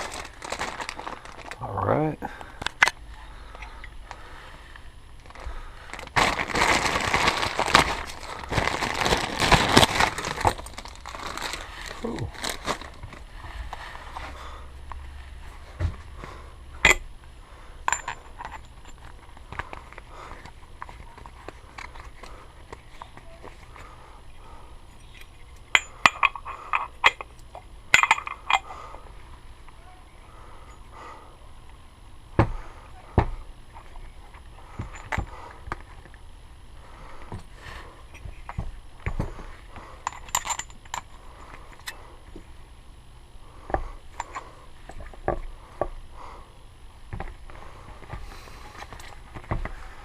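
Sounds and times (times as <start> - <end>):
crinkling and rustling: 0.0 - 1.7, 2.4 - 14.4, 17.9 - 24.0
metal tools clinking: 17.9 - 19.2, 24.9 - 28.7, 40.0 - 42.0.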